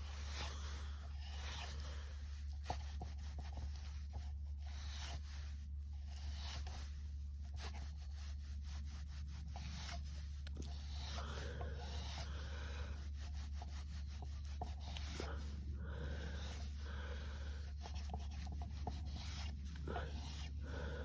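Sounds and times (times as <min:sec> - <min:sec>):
steady low rumble: 0:09.4 - 0:21.0.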